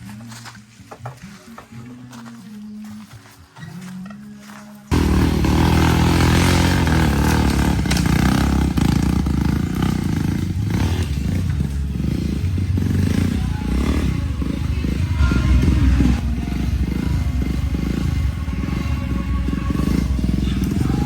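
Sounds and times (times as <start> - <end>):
motorcycle engine running: 4.9 - 21.0.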